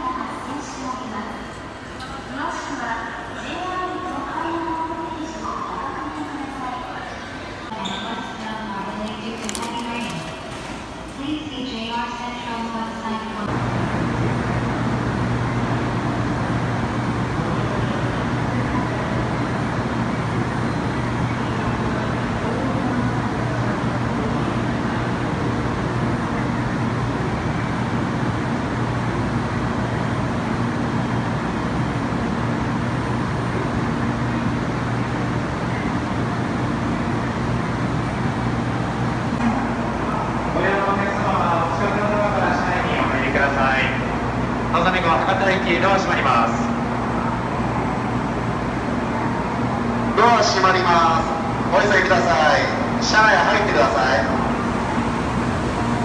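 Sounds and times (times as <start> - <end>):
low hum of standing train: 0.0 - 56.0
platform noise wash: 0.0 - 56.0.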